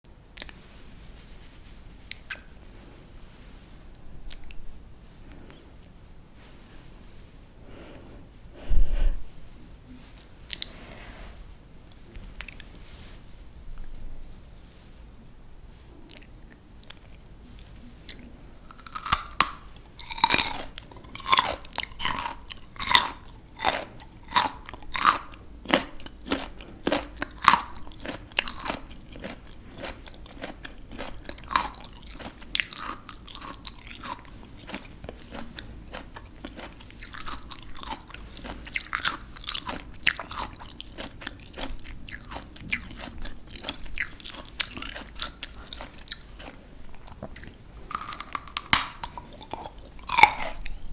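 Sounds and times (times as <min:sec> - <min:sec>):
person crunching raw vegetables: 0:12.3 - 0:12.9, 0:16.1 - 0:50.9.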